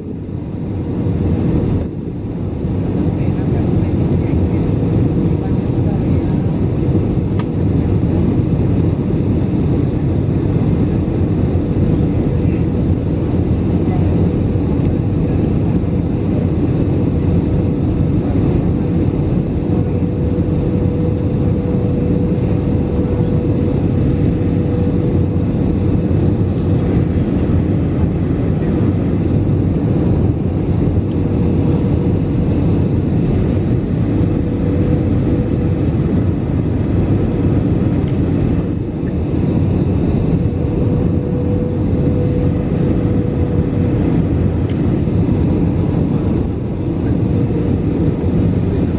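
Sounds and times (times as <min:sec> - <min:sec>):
jet engine roar: 0:00.0 - 0:48.9.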